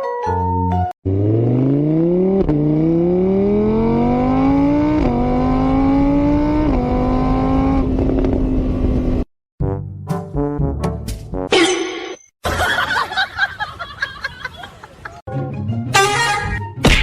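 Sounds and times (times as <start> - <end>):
car engine accelerating: 1.0 - 9.3.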